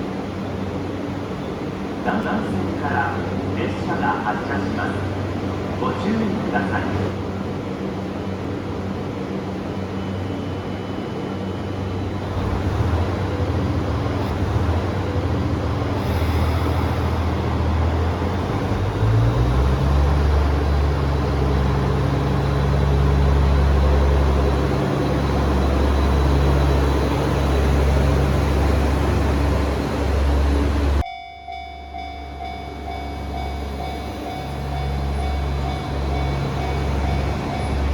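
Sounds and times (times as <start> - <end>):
model train diesel engine: 2.1 - 31.0, 32.4 - 37.9.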